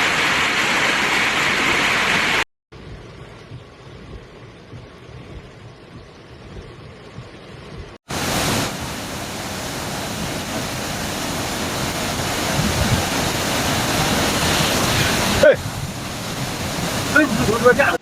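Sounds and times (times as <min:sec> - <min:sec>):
storm water rushing: 0:07.7 - 0:18.0.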